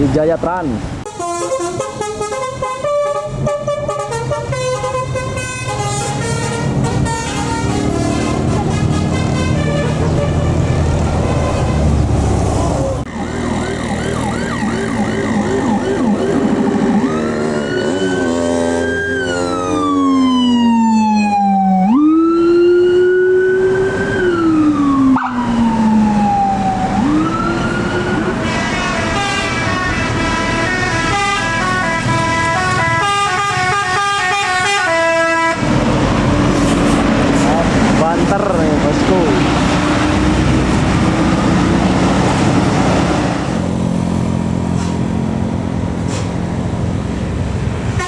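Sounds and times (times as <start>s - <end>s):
musical air horn: 1.1s - 12.0s, 28.4s - 35.7s
bus engine running: 1.7s - 18.4s, 23.6s - 48.0s.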